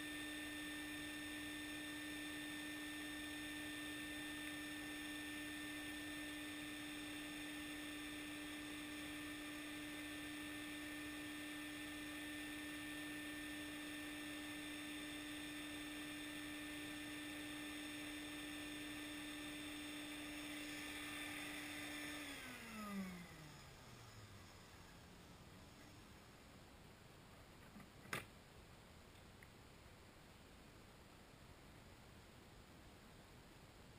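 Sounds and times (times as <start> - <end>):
shop vacuum motor whining: 0.0 - 26.2.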